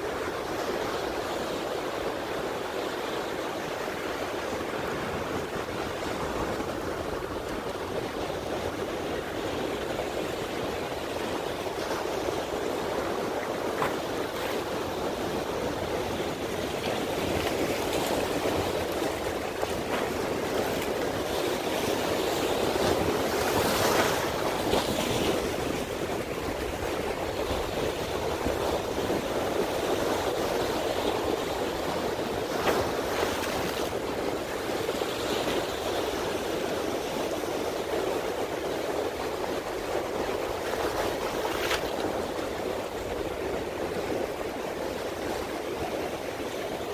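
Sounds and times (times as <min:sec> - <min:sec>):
water splashing against rocks: 0:32.4 - 0:34.6, 0:40.5 - 0:42.6.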